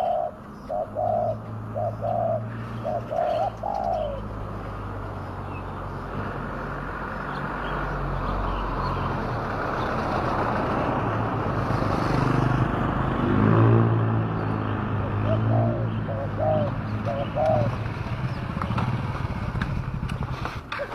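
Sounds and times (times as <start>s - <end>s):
vehicle engine approaching: 0.0s - 20.9s.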